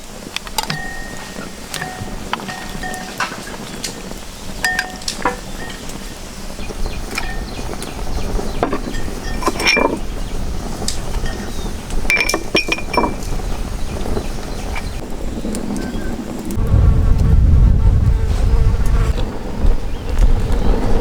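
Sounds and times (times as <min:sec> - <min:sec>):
hard objects clinking and knocking: 0:00.4 - 0:10.3, 0:11.2 - 0:13.5.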